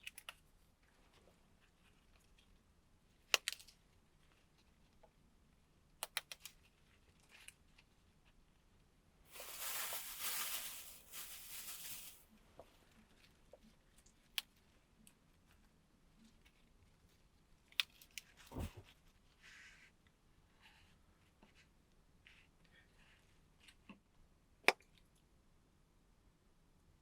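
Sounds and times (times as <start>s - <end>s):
rustling hiss: 9.3s - 12.2s.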